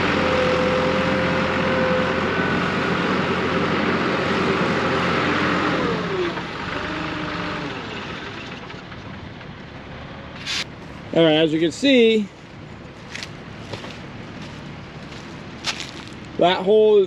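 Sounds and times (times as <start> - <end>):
heavy vehicle engine winding down: 0.0 - 11.8.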